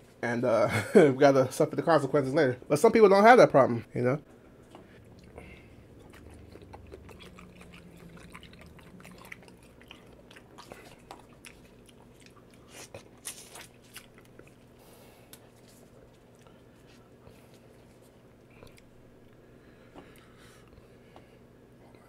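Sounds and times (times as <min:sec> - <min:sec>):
wet mouth clicks chewing: 0:05.0 - 0:14.7, 0:18.5 - 0:19.4.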